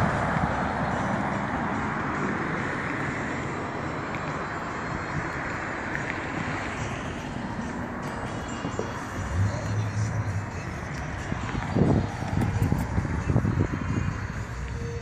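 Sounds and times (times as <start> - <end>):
car engine rumbling: 0.0 - 15.0
wind noise on microphone: 8.7 - 15.0.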